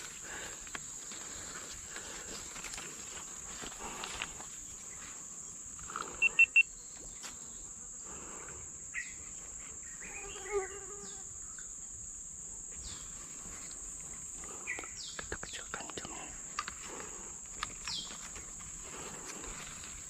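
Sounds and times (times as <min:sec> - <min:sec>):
insects droning: 0:00.0 - 0:20.0
brief animal call: 0:06.2 - 0:06.6
sharp high chirps: 0:06.2 - 0:06.7.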